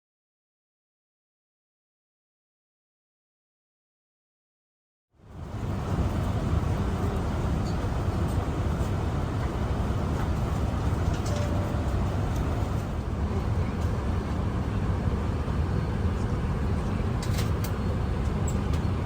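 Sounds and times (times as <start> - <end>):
airliner cabin rumble: 5.3 - 19.0.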